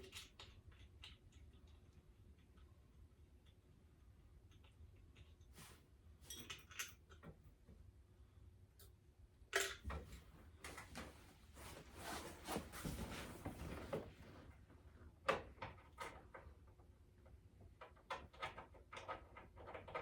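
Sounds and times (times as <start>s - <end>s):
tools rustling and scraping: 9.9s - 14.4s.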